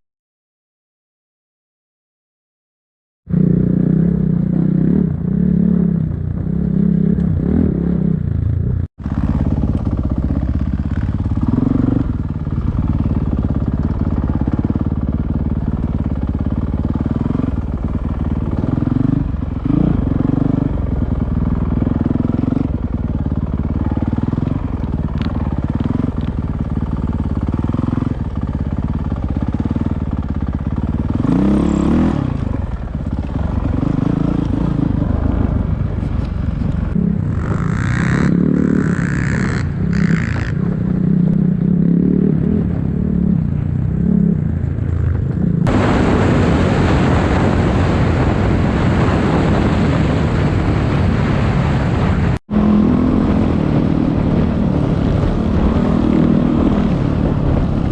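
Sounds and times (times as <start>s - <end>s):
motorcycle engine revving: 3.3s - 57.9s.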